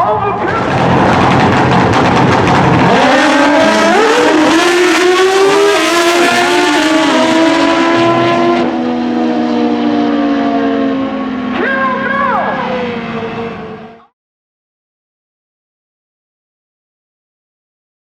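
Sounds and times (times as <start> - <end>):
racing motorcycle engines: 0.0 - 14.1.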